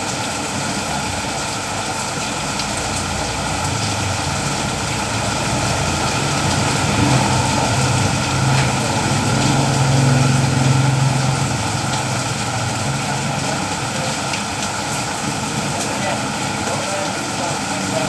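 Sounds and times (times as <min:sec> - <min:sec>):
steady rain falling: 0:00.0 - 0:18.0
motor engine running: 0:02.7 - 0:15.4.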